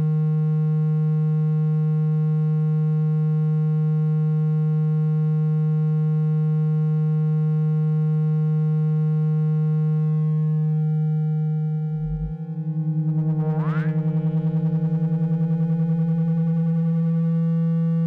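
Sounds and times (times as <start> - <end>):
low electronic tone: 10.0 - 18.0.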